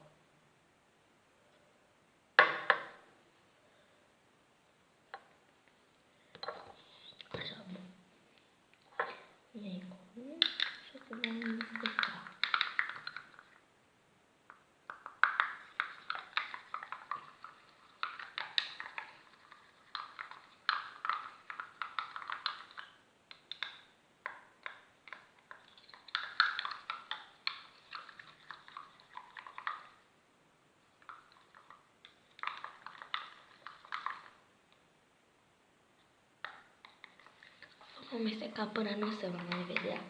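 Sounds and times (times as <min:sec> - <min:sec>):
utensil tapping a container: 0:10.4 - 0:13.4.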